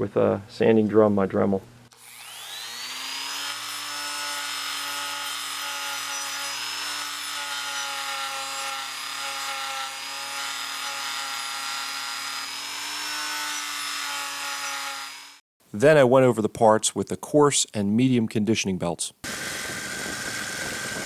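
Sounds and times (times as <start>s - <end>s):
rotary tool whining: 1.9s - 15.4s, 19.3s - 21.0s.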